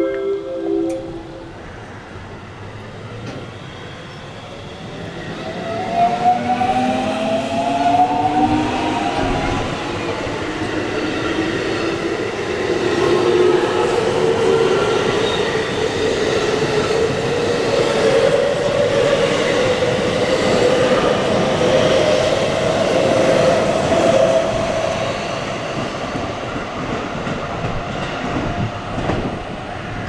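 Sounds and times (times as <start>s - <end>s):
train wheels clattering on rails: 7.9s - 30.0s.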